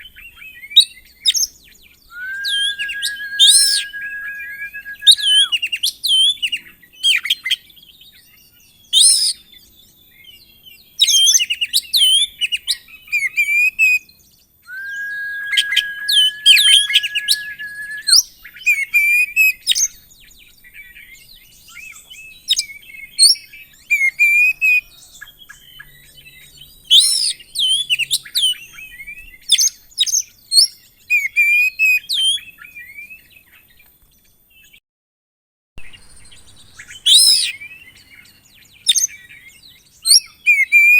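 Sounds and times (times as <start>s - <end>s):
bird singing whistles and chatter: 2.1s - 5.6s, 14.7s - 18.3s.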